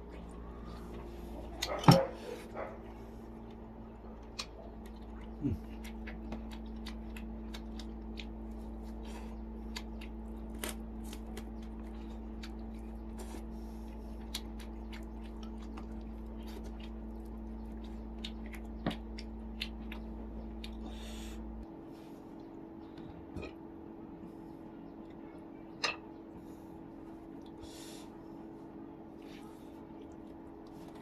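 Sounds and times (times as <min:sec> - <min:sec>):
low electrical hum: 0:00.0 - 0:31.0
chewing with wet clicks: 0:01.4 - 0:21.0, 0:27.0 - 0:27.6, 0:29.2 - 0:31.0.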